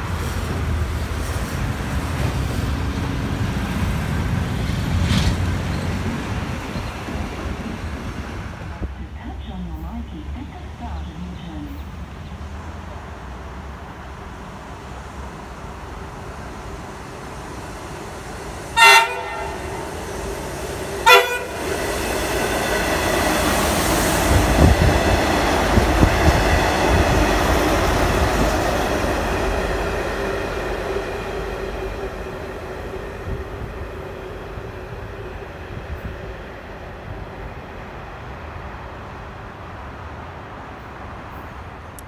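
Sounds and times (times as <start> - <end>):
train engine and wheels rumbling: 0.0 - 42.0
train horn blasts: 18.8 - 20.0, 21.0 - 21.7.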